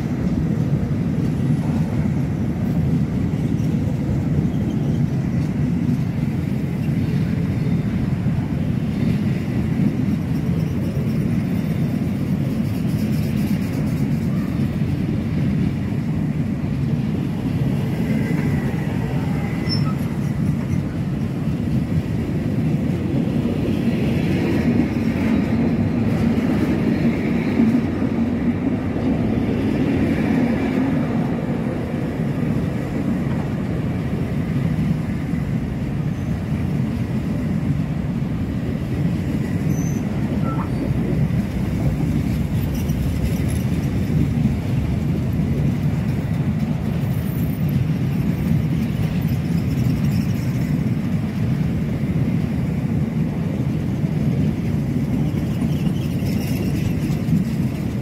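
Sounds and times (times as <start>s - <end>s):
freight train wheels rumbling: 0.0s - 58.0s
faint wheel squeals: 19.3s - 21.0s, 39.6s - 40.9s, 55.3s - 57.2s.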